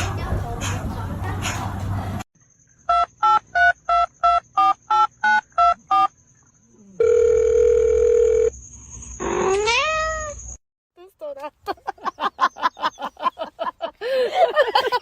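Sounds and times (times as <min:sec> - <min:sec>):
steady dial tone: 0:07.0 - 0:08.5.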